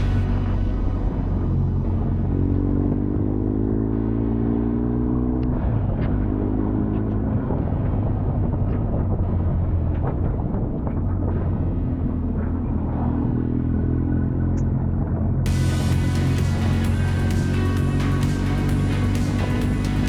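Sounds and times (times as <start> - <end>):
road and wind rush: 0.0 - 20.0
motorcycle engine running: 15.5 - 20.0.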